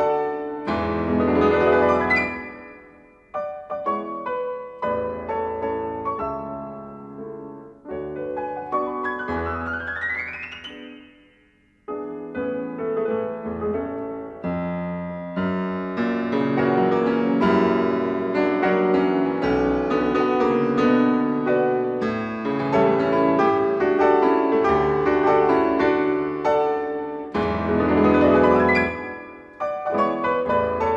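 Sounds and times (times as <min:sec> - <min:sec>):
piano music: 0:00.0 - 0:30.9.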